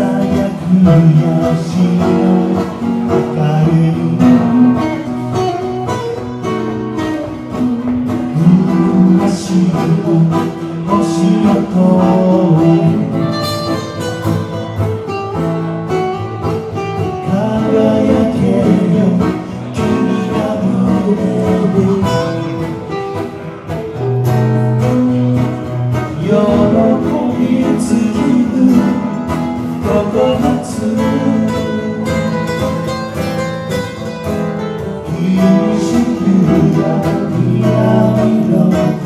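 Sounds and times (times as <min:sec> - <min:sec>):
plucked acoustic guitar music: 0:00.0 - 0:39.0.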